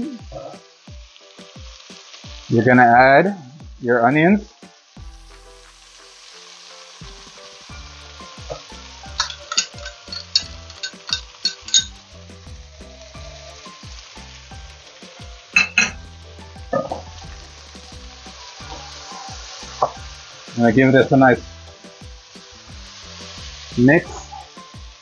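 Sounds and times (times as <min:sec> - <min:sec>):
food sizzling in hot oil: 0:00.0 - 0:25.0
sharp clinks: 0:09.2 - 0:12.0.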